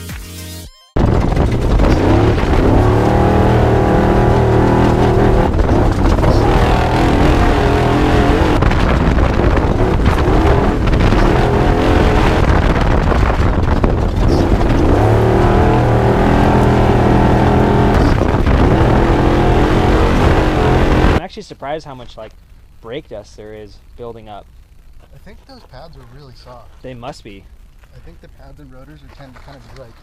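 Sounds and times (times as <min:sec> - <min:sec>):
truck engine running loud: 0:01.0 - 0:21.2.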